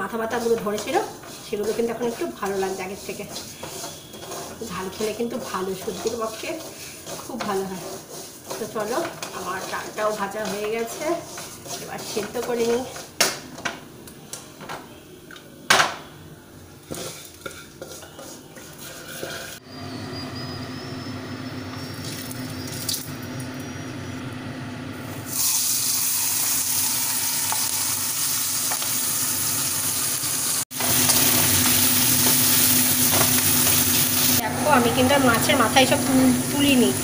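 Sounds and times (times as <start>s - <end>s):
fish frying sizzle: 0.0s - 11.9s, 25.1s - 34.4s
hot oil hissing: 0.0s - 12.6s, 25.1s - 37.0s
pots and utensils clinking: 0.3s - 13.8s.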